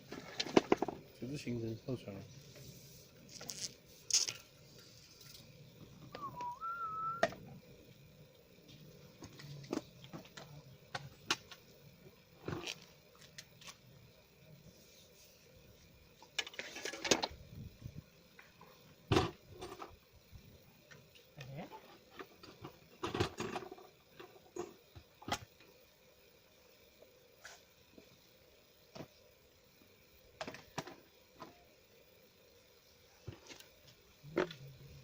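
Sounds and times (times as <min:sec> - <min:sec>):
short whistled note: 0:06.1 - 0:07.3.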